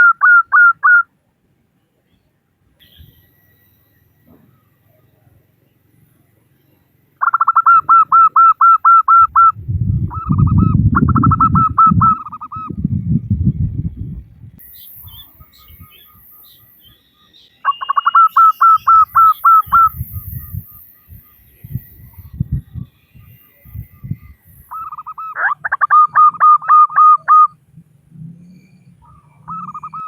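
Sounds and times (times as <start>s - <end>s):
dove calling: 0.0s - 1.1s, 7.1s - 27.6s, 28.5s - 30.0s
loud low rumble: 9.5s - 14.6s.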